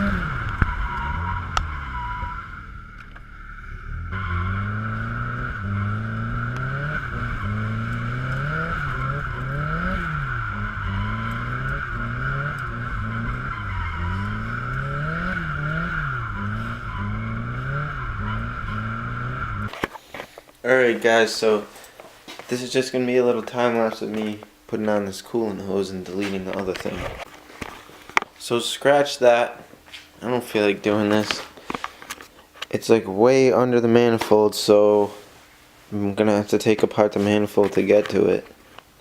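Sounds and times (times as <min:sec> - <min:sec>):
car engine revving: 0:00.0 - 0:19.7
steady high-pitched tone: 0:00.0 - 0:19.7.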